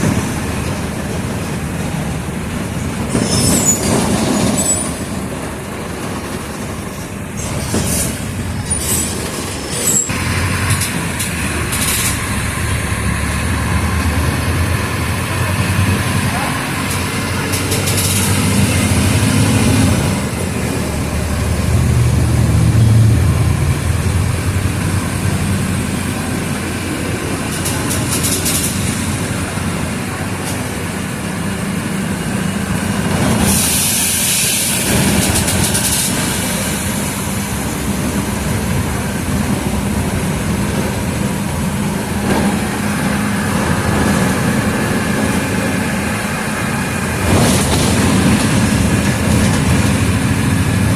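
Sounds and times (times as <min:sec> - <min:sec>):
bus diesel engine running: 0:00.0 - 0:50.9
loud hissing burst: 0:33.4 - 0:37.6.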